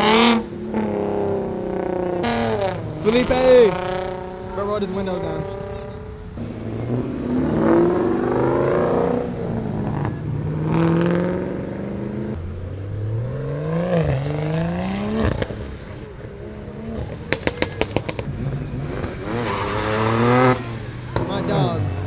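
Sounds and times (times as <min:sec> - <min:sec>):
car engine revving: 0:00.0 - 0:22.0
sharp cracks: 0:17.3 - 0:18.3.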